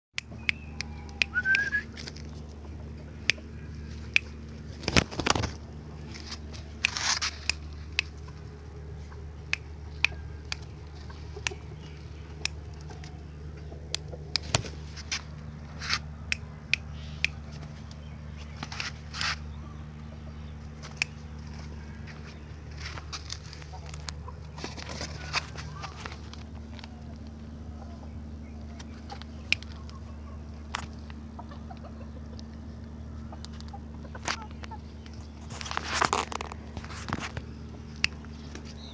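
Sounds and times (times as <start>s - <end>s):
steady low hum: 0.2s - 38.9s
sharp clicks: 3.2s - 19.4s.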